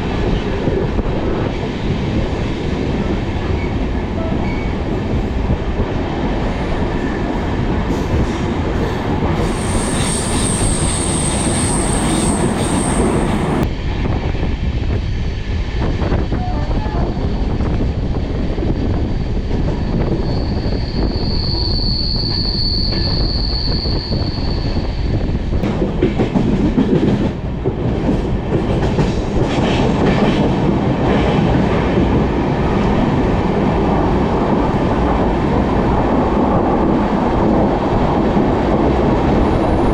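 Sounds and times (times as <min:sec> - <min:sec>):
train rumbling on rails: 0:00.0 - 0:39.9
high-pitched wheel squeal: 0:09.5 - 0:13.3, 0:20.0 - 0:25.1.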